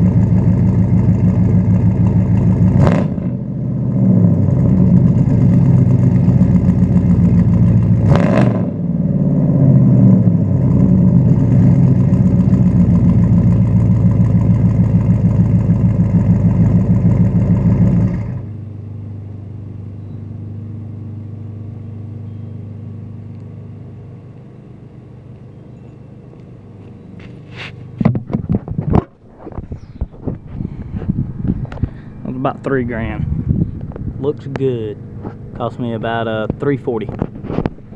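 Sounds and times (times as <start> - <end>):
sharp exhaust crack: 0.0 - 18.6
engine revving and idling: 0.0 - 28.2.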